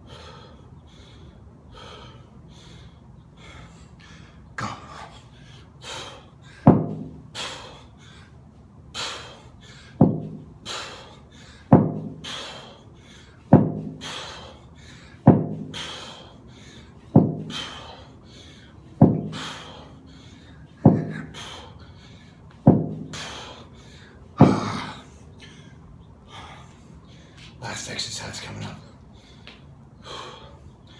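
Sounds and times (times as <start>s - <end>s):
man breathing hard: 0.0s - 27.6s, 28.9s - 30.9s
heavy thuds: 6.6s - 7.3s, 10.0s - 10.9s, 11.7s - 12.6s, 13.5s - 14.5s, 15.2s - 16.1s, 17.1s - 18.0s, 19.0s - 19.8s, 20.8s - 21.6s, 22.6s - 23.5s, 24.4s - 25.1s.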